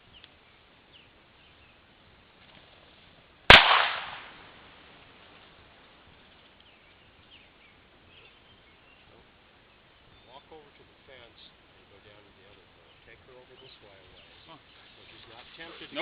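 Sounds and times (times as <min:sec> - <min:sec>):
gunshot crack: 0:03.5 - 0:04.6.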